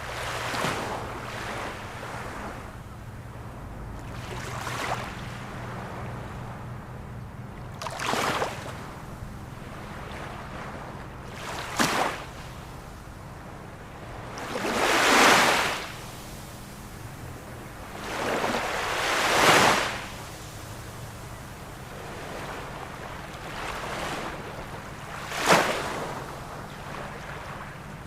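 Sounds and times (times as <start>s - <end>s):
ocean waves breaking: 0.0s - 28.0s.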